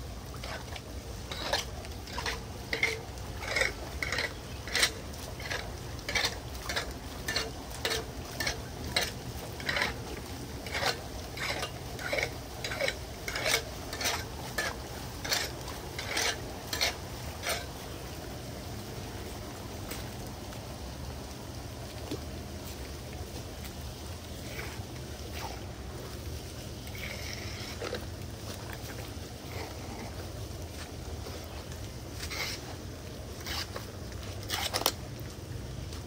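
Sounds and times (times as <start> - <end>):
scraping and clinking strokes: 10.6 - 17.7, 33.4 - 33.8.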